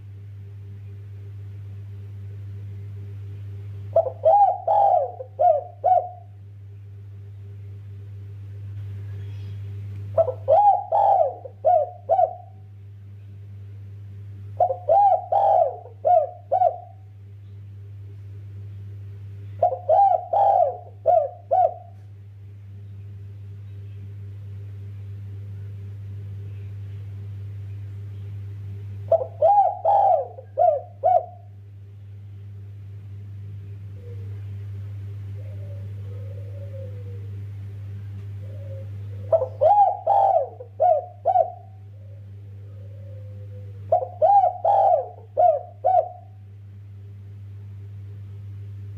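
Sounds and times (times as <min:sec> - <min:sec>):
steady low hum: 0:00.0 - 0:48.9
dove cooing: 0:03.9 - 0:06.4, 0:10.1 - 0:12.7, 0:14.6 - 0:17.1, 0:19.6 - 0:22.0, 0:29.0 - 0:31.6, 0:33.8 - 0:34.6, 0:35.2 - 0:37.5, 0:38.3 - 0:46.4.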